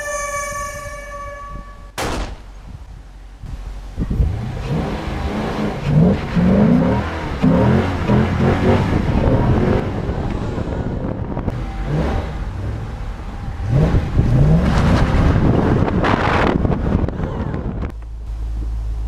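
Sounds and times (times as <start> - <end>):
sharp crack: 2.0 - 2.9
car engine revving: 4.0 - 17.9.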